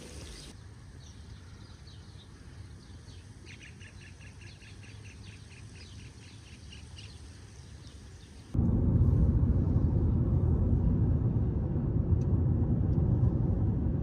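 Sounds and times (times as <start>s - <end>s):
faint low rumble: 8.5s - 14.0s.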